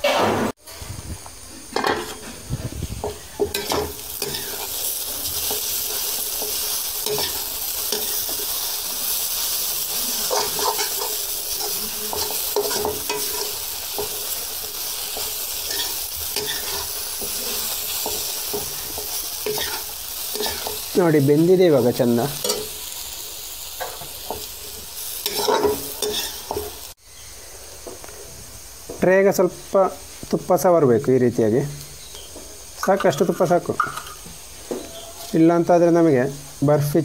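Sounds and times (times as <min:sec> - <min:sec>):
carrot sizzling in a pan: 0:01.0 - 0:37.0
metal spoon scraping a pan: 0:03.0 - 0:08.5, 0:09.9 - 0:14.4, 0:15.1 - 0:20.9, 0:25.2 - 0:26.7.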